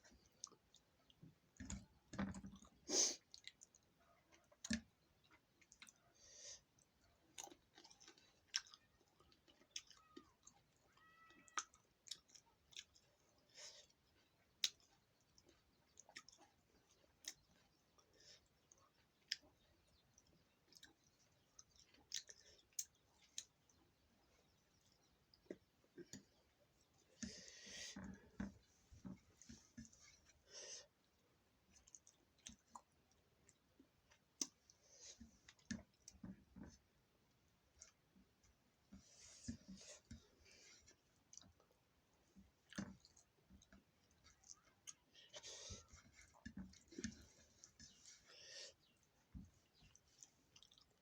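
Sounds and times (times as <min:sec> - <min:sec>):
faint clicks and knocks: 0:45.7 - 0:48.0.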